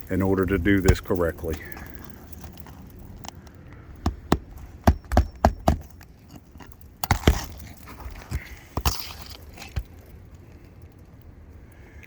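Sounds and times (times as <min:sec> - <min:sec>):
hammer driving nails into shingles: 0:04.0 - 0:06.0, 0:07.0 - 0:09.9.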